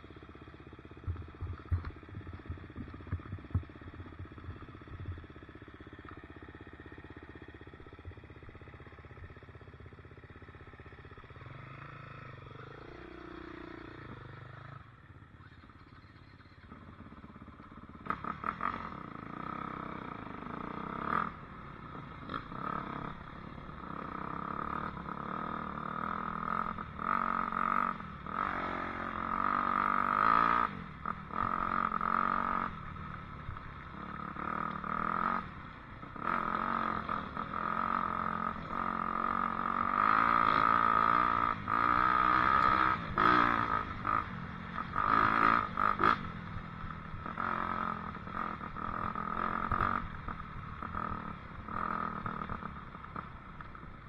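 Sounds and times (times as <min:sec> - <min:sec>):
dirt bike engine revving: 0:36.1 - 0:46.3.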